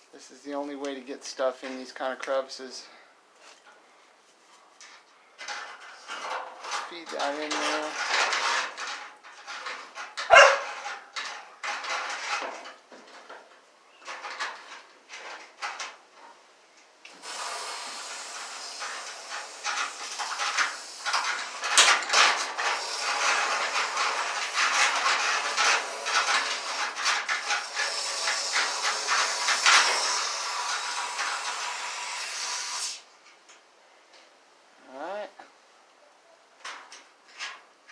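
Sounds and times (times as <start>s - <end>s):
aerosol spray hiss: 17.1s - 21.3s.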